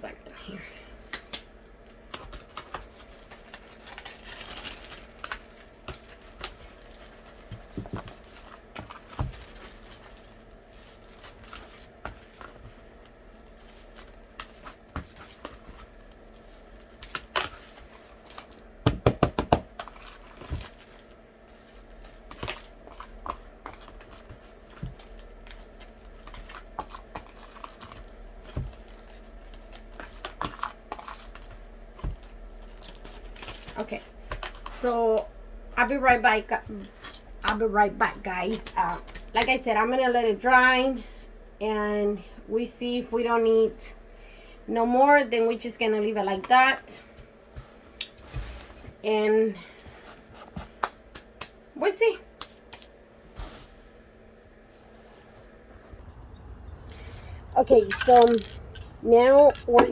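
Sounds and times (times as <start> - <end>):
faint low hum: 53.9 - 59.9
tumbler and craft supplies clicking: 56.8 - 59.9.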